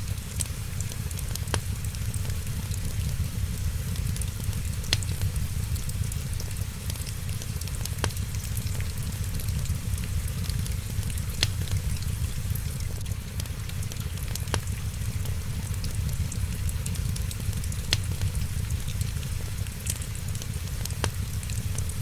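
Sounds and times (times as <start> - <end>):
wood fire crackling: 0.0 - 22.0
sharp pops of fire: 1.3 - 6.5, 15.8 - 19.8.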